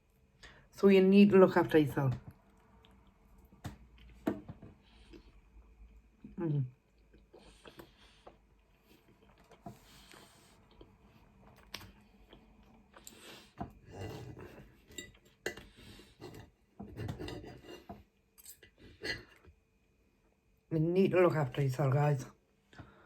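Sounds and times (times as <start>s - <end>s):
cutlery scraping against a plate: 13.8s - 19.4s.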